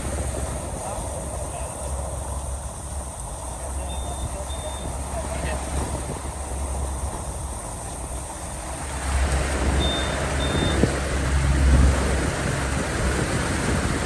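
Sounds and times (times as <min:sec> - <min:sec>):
boat engine running: 0:00.0 - 0:14.0
wind and water rushing: 0:00.0 - 0:14.0
short high electronic beeps: 0:03.9 - 0:04.9, 0:09.8 - 0:10.8.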